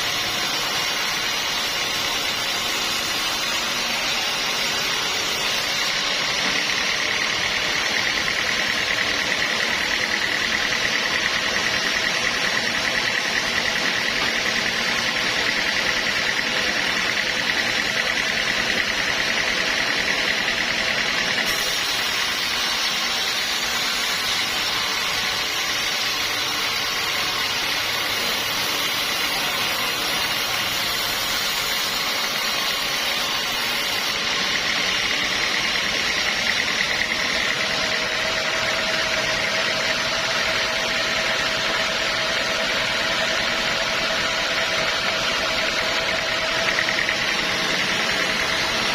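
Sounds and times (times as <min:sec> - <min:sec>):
sawmill machinery running: 0:00.0 - 0:48.9
steady machine whine: 0:00.0 - 0:48.9.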